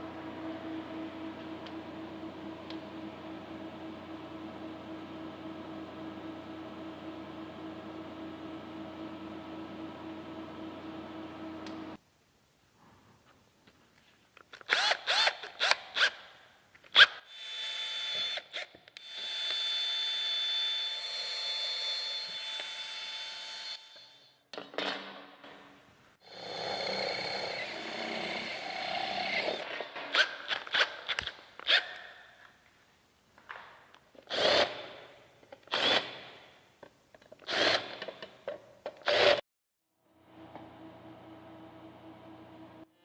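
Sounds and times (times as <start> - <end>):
electric drill motor: 14.7 - 16.1, 17.0 - 24.3, 26.2 - 29.7, 34.3 - 34.8, 35.7 - 36.2, 37.5 - 38.1, 39.0 - 39.4.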